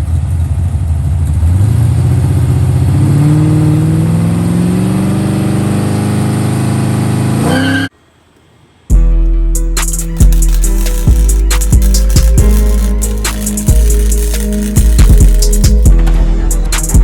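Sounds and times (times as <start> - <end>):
car engine accelerating: 0.0 - 7.6
music with a beat: 8.9 - 17.0.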